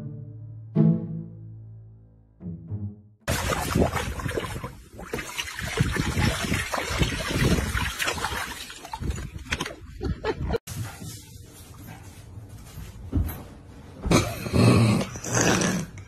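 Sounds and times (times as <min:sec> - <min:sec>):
water splashing in a paddling pool: 0:03.3 - 0:10.0.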